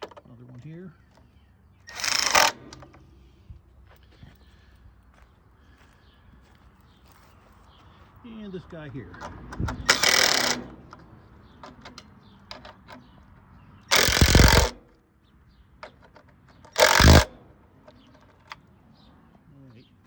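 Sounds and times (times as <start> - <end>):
clicks of socket and bolts: 1.9 - 3.1, 9.1 - 13.2, 13.8 - 14.9, 15.8 - 18.7
power driver spinning bolts: 1.9 - 3.2, 9.1 - 13.2, 13.8 - 14.8, 15.8 - 18.7.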